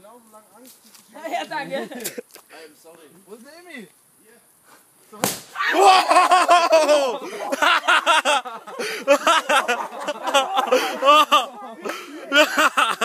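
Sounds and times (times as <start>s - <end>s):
aerosol can bursting with bang: 5.2s - 5.6s
people laughing loudly: 5.7s - 13.0s.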